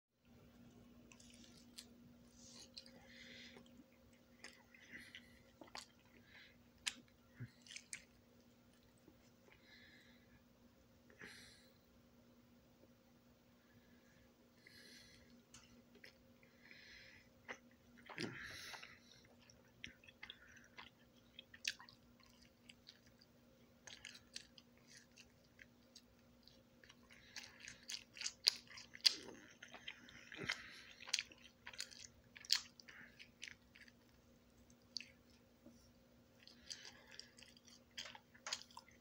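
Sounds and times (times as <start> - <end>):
faint steady hum: 0.2 - 39.0
chewing and biting pizza: 0.9 - 9.6, 17.5 - 35.5, 36.3 - 39.0.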